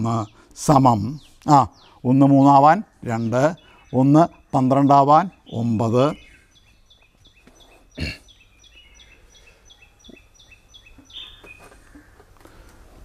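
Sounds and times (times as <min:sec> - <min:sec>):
bird chirping: 0:00.0 - 0:12.7.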